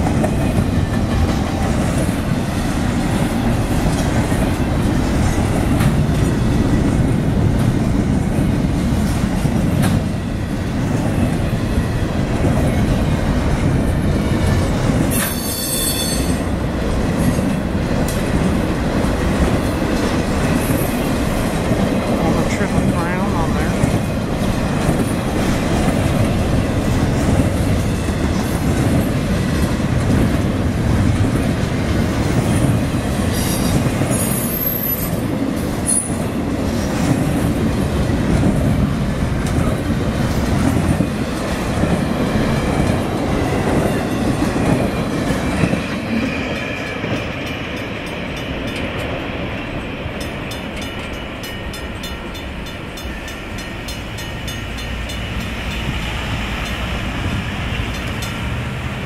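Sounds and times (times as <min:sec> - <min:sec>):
train wheels rumbling and clattering: 0:00.0 - 0:59.0
train wheel squeal: 0:15.1 - 0:16.6, 0:32.4 - 0:35.2, 0:35.8 - 0:36.2, 0:45.6 - 0:57.2
crossing bells ringing: 0:46.1 - 0:58.9.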